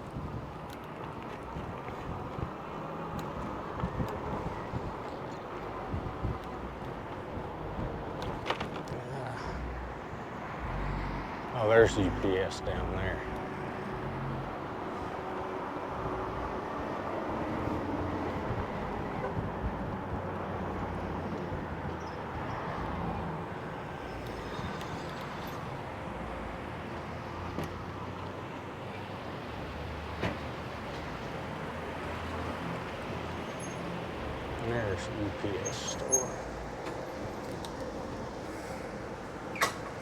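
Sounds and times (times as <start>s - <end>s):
wind rumble on microphone: 0.0s - 8.7s, 13.3s - 23.3s
road noise: 0.0s - 40.0s.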